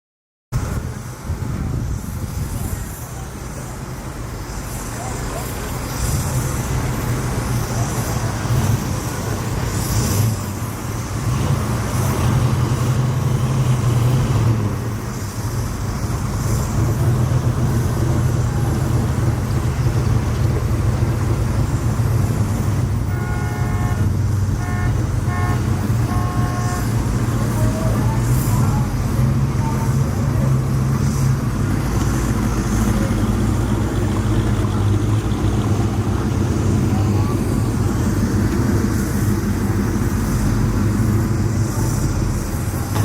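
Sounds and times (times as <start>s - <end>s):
car engines rumbling: 0.5s - 43.0s
car horn toots: 23.0s - 27.2s.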